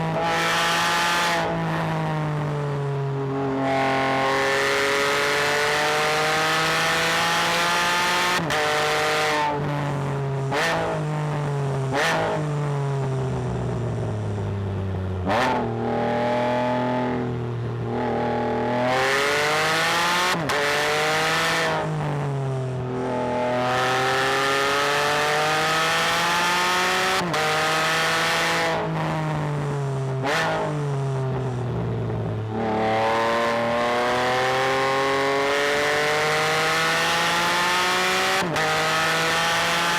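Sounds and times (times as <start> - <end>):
engine revving through gear changes: 3.6 - 9.5, 18.0 - 22.0, 23.0 - 29.2, 32.5 - 39.9.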